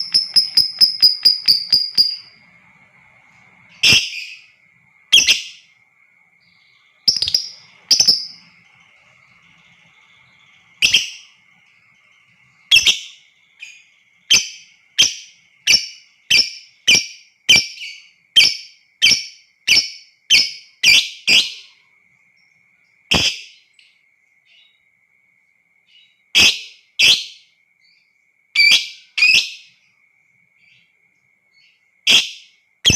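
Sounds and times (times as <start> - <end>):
lovebird shrill calls: 0.0 - 2.5, 3.7 - 4.5, 5.1 - 5.7, 6.7 - 11.4, 12.7 - 21.6
faint steady high tone: 0.0 - 20.8, 21.5 - 32.9.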